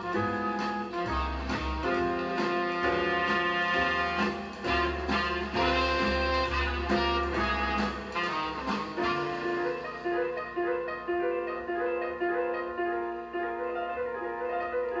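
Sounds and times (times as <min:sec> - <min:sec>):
jazz with horns and walking bass: 0:00.0 - 0:10.4.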